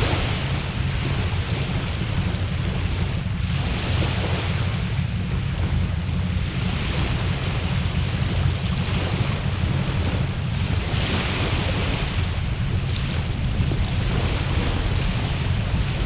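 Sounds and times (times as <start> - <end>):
high-pitched whine: 0.0 - 16.0
wind rumble on microphone: 0.0 - 16.0.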